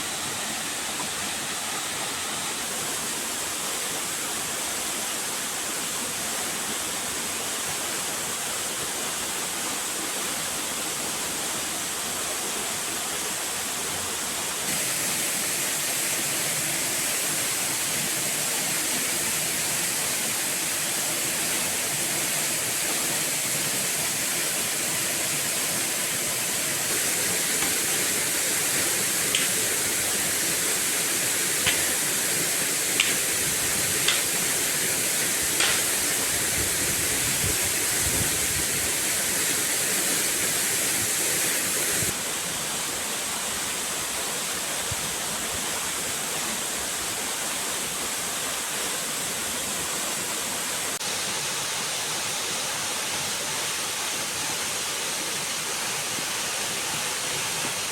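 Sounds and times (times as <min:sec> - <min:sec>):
water rushing: 0:00.0 - 0:57.9
short sharp knocks: 0:35.6 - 0:35.9.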